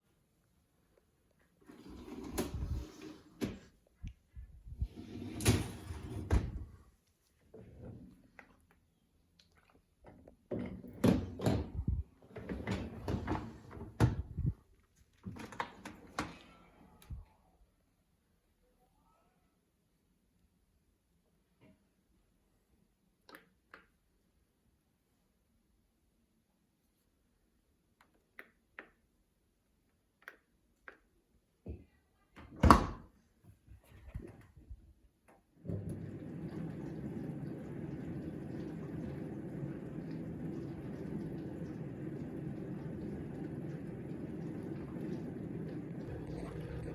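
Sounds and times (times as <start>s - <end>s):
dishwasher water rushing: 1.7s - 3.4s, 4.8s - 6.8s, 10.6s - 14.5s, 35.6s - 46.9s
dishwasher racks clattering and sliding: 4.9s - 6.7s, 10.6s - 14.2s, 35.6s - 39.0s.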